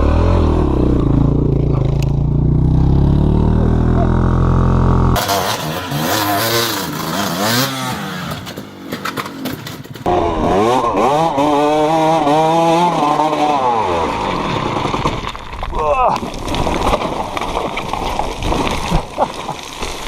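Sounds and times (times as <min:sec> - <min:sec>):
off-road vehicle engines revving: 0:00.0 - 0:14.5.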